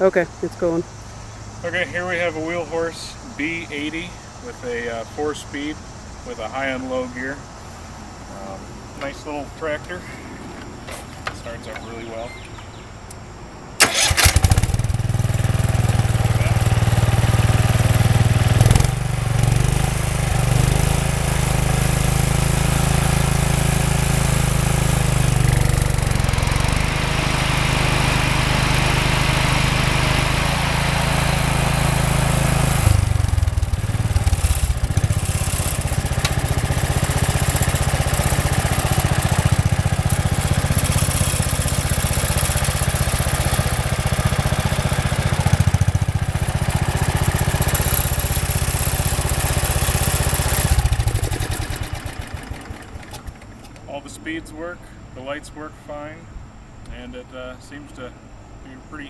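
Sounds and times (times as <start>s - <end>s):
lawn tractor engine running: 1.0s - 7.2s, 13.8s - 54.2s.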